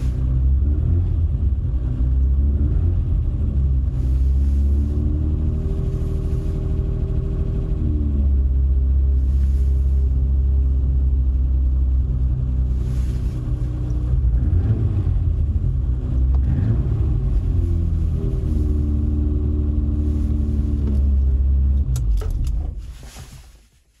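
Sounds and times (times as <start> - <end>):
car engine idling: 0.0 - 23.6
engine clicks: 20.8 - 23.4.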